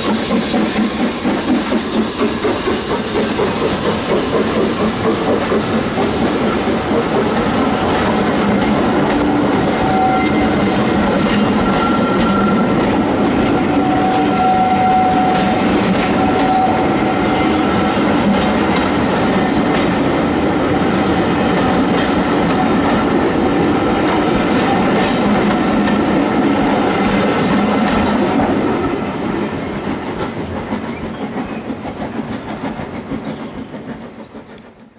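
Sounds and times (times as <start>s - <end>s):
train wheels rumbling on rails: 0.0s - 34.9s.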